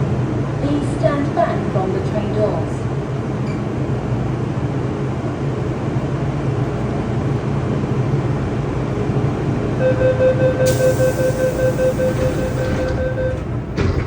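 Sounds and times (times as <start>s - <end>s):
train rumble and hiss: 0.0s - 14.0s
rapid warning beeps: 9.8s - 13.5s.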